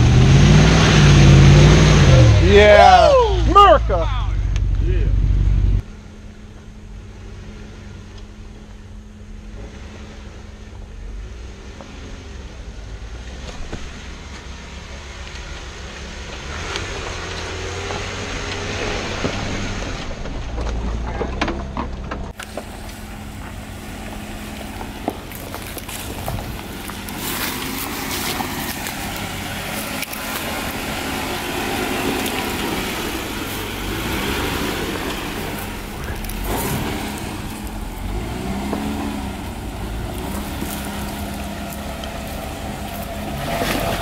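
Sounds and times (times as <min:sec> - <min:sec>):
engine running at low revs: 0:00.0 - 0:44.0
tyre noise: 0:10.6 - 0:44.0
wind noise: 0:24.7 - 0:41.6.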